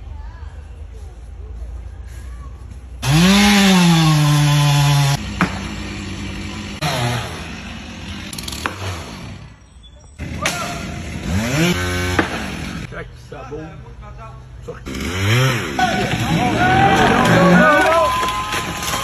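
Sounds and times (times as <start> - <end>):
two-stroke chainsaw revving: 3.0 - 9.6, 10.2 - 12.9, 14.9 - 17.8.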